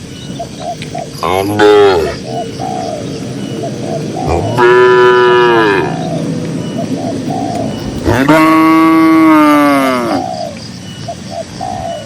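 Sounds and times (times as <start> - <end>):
cattle mooing: 1.4 - 2.2, 4.2 - 6.1, 8.0 - 10.2.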